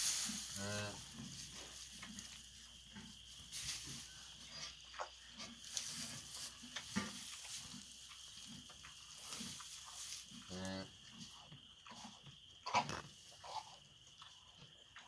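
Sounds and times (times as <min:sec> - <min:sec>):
rustling: 0:00.0 - 0:10.5.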